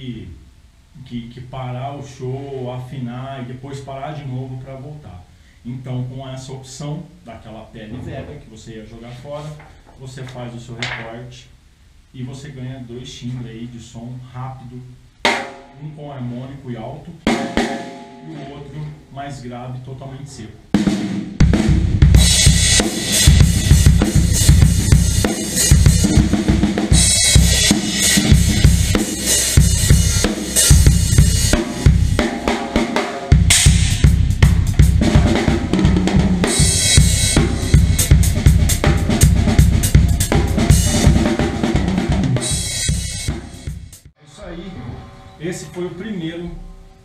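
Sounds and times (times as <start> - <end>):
drum kit groove: 15.2 - 15.8, 17.2 - 19.1, 20.7 - 44.2
bright cymbal wash: 17.3 - 19.0, 22.2 - 35.6.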